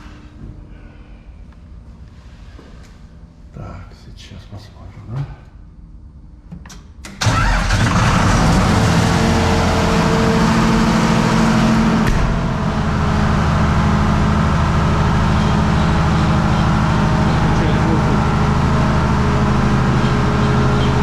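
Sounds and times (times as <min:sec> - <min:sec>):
diesel generator engine running: 0:07.2 - 0:21.0.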